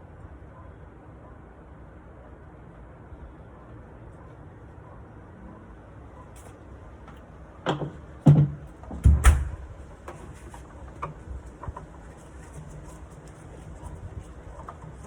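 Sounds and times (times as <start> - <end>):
wooden furniture knocks and clunks: 7.7 - 9.6.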